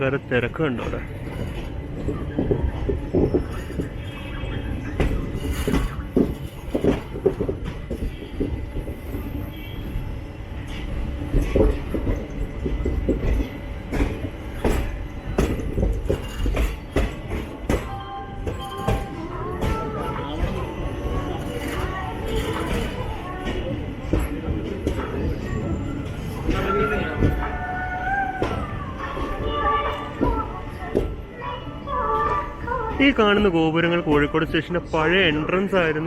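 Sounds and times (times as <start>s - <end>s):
train coaches rumbling: 0.0s - 36.0s
wheels clanking over rail joints: 10.6s - 34.6s.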